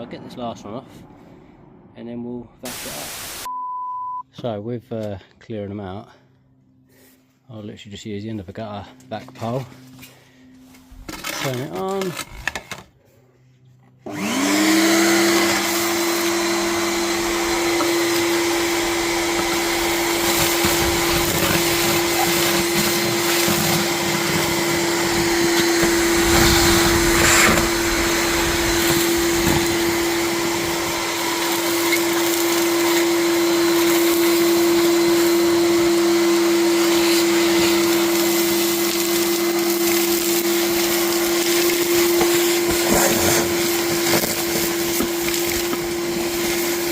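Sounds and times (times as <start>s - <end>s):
vacuum motor whine: 14.0s - 46.9s
vacuum sucking mud and debris: 14.1s - 46.9s.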